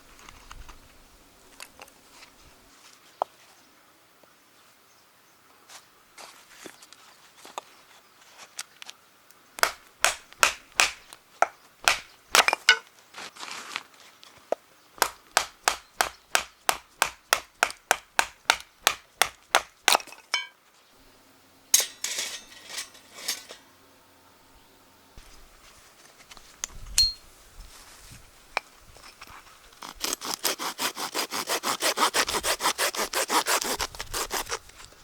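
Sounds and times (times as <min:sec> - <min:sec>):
scraping rustle: 0:21.8 - 0:23.7, 0:25.2 - 0:35.0.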